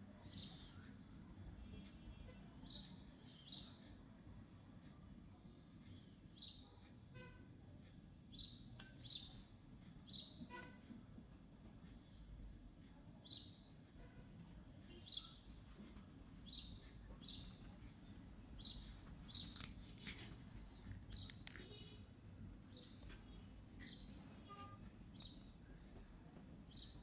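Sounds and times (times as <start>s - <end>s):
small bird chirping: 2.1s - 3.9s, 5.9s - 6.9s, 8.3s - 10.8s, 13.2s - 14.1s, 14.8s - 15.6s, 16.4s - 17.8s, 18.5s - 22.0s, 22.7s - 25.8s, 26.7s - 27.0s.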